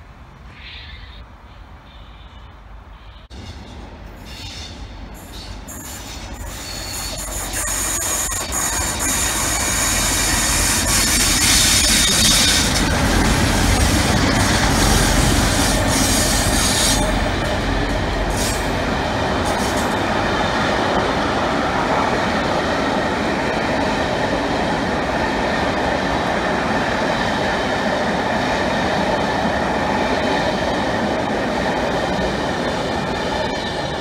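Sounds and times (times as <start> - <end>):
diesel locomotive passing: 1.6 - 34.0
wheels rumbling on rail: 1.6 - 34.0
locomotive hiss: 3.3 - 12.8.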